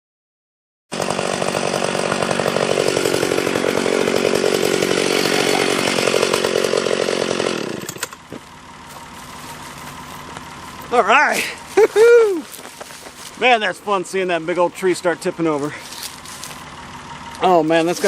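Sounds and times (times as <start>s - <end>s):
chainsaw cutting wood: 0.9s - 18.0s
wood snapping: 7.7s - 10.9s, 12.4s - 13.4s.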